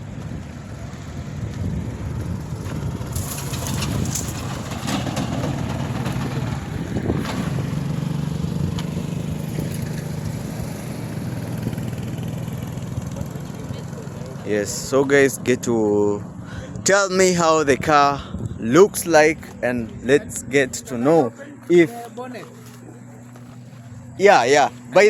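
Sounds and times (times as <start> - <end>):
car engine humming: 0.0 - 25.0
outdoor background noise: 0.0 - 25.0
faint scuffs: 21.5 - 24.9.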